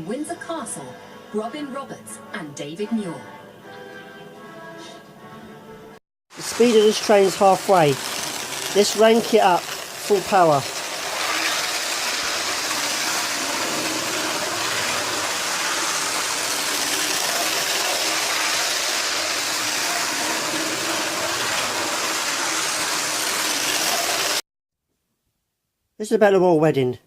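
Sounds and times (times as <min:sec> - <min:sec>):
model train whirring on rails: 0:06.4 - 0:24.4.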